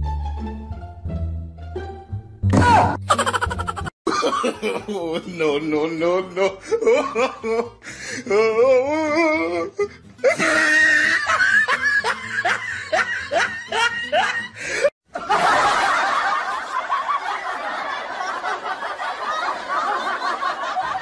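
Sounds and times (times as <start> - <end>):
person laughing: 2.7 - 15.5.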